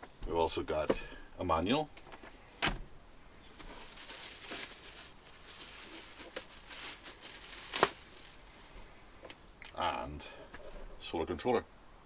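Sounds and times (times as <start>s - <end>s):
packaging rustling: 3.6s - 8.7s.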